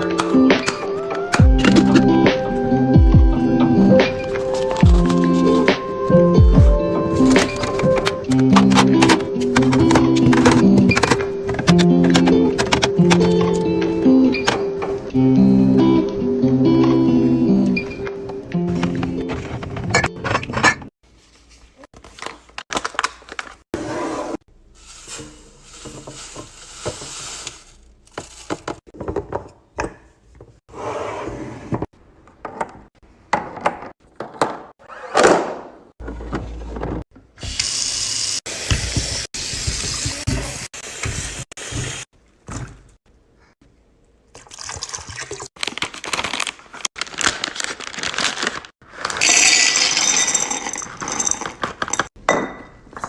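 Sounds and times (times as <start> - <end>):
liquid pouring: 44.3 - 45.5
containers clinking and knocking: 49.2 - 53.0.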